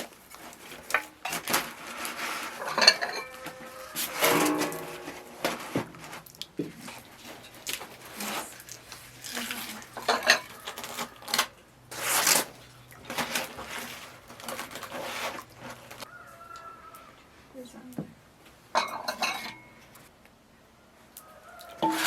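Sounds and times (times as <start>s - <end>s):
spoons clinking against bowls: 18.8s - 19.7s.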